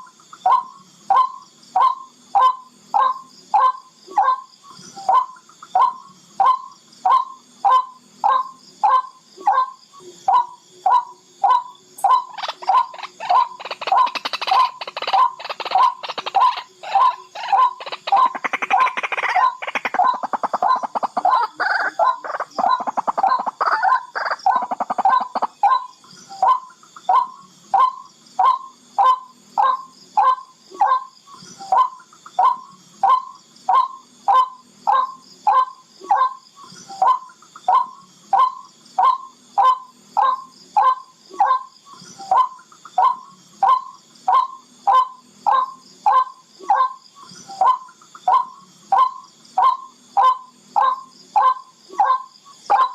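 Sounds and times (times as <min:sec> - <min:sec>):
rail bird calling: 0:05.0 - 0:36.4.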